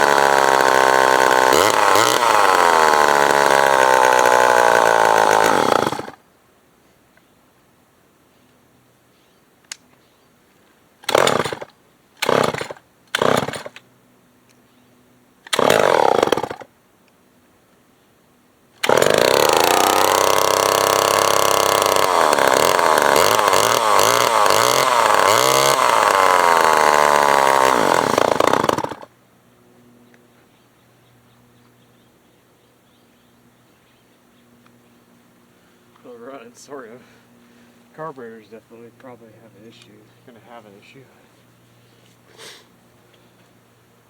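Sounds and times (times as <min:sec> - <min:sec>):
chainsaw starting and running: 0:00.0 - 0:06.2, 0:11.0 - 0:13.8, 0:15.5 - 0:16.7, 0:18.8 - 0:29.1.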